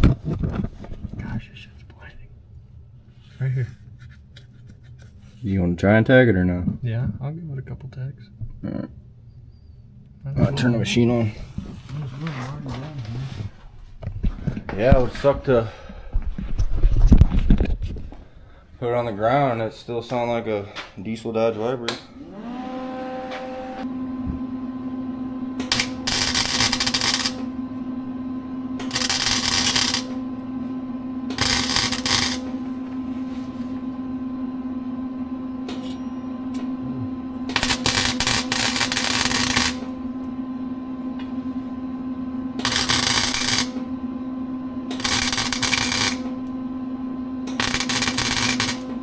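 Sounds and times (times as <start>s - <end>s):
welding machine hum: 22.0s - 49.0s
welding crackling: 25.6s - 27.5s, 28.8s - 30.2s, 31.3s - 32.5s, 37.5s - 39.9s, 42.6s - 43.8s, 44.9s - 46.3s, 47.5s - 48.9s.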